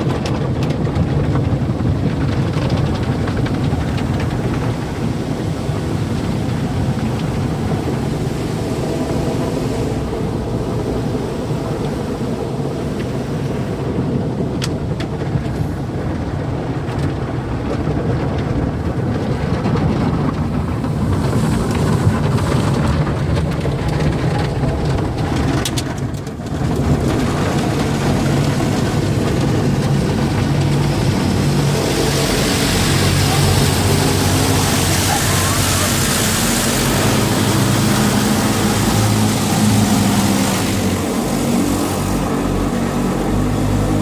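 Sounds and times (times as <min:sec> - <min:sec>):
car wash water rumble: 0:00.0 - 0:44.0.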